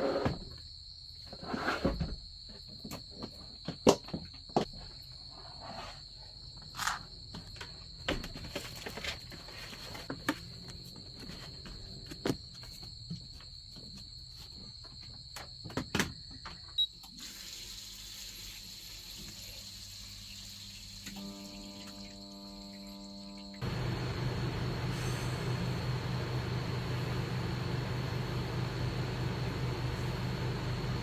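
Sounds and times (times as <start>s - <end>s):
insect chorus trilling: 21.2s - 23.7s
bright hiss: 23.6s - 31.0s.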